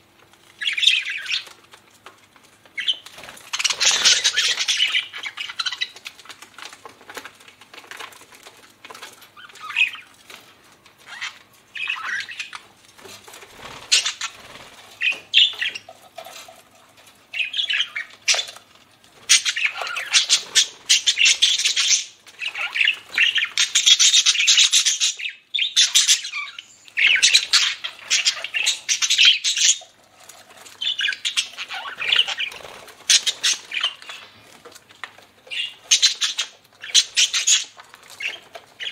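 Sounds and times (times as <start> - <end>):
budgerigars chattering: 2.8 - 6.0, 13.8 - 14.4, 19.3 - 30.0, 30.8 - 34.4, 35.5 - 38.9.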